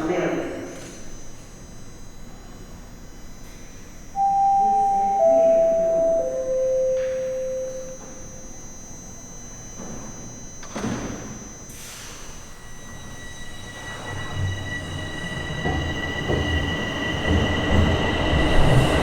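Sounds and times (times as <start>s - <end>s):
subway door-closing chime: 4.1s - 19.0s.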